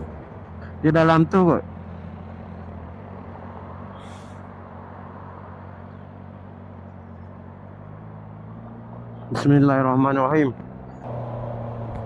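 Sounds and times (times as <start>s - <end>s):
motorcycle engine idling: 0.0s - 3.0s.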